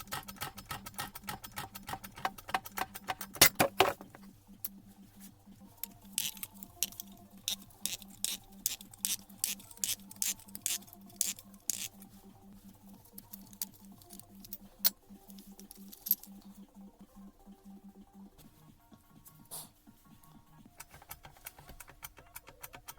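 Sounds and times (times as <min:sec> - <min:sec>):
tools and small parts clicking: 0:00.0 - 0:04.8, 0:05.8 - 0:12.1, 0:12.7 - 0:16.6, 0:20.8 - 0:22.9.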